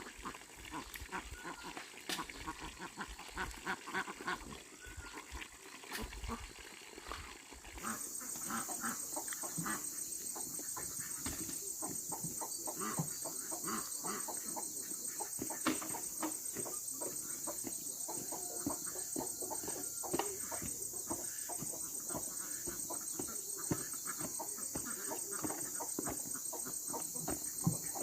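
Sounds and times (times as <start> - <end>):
chickens clucking: 7.8 - 28.0.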